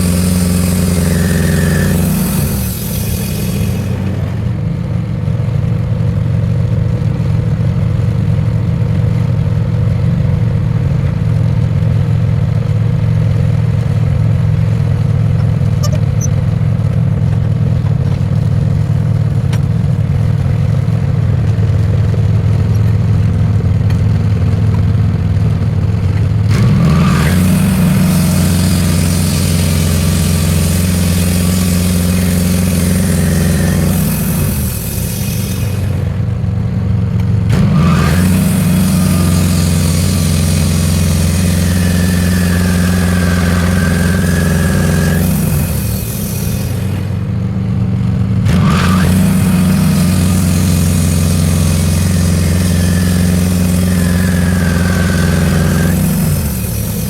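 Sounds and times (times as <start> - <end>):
hiss: 0.0 - 4.5, 26.9 - 36.1, 37.8 - 47.2, 48.5 - 57.0
sawmill engine running: 0.0 - 57.0.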